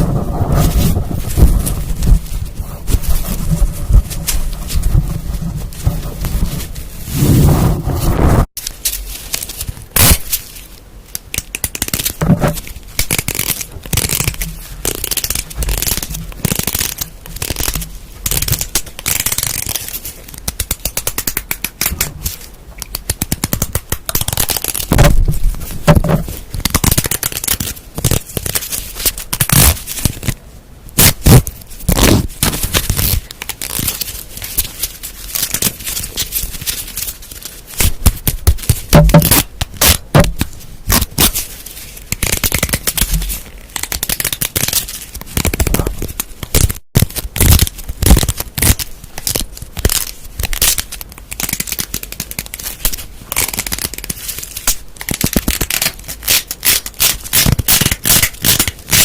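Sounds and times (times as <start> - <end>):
scratching on objects: 0.0 - 30.4, 31.0 - 59.0
crackling objects: 0.0 - 59.0
rapid tapping on objects: 38.1 - 39.4.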